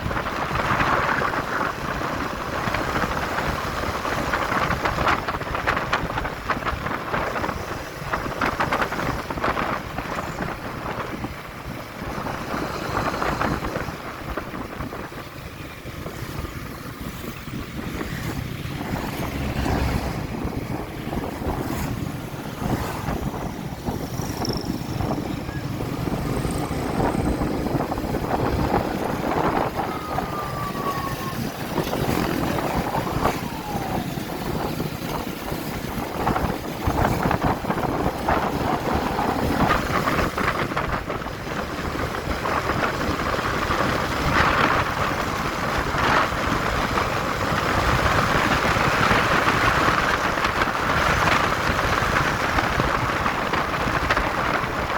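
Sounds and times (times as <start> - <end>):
wind and road noise: 0.0 - 54.9
motorcycle engine: 15.4 - 42.8.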